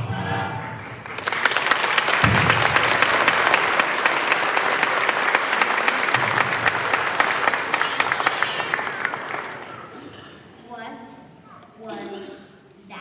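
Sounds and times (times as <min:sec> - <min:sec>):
audience applause: 0:00.7 - 0:10.2.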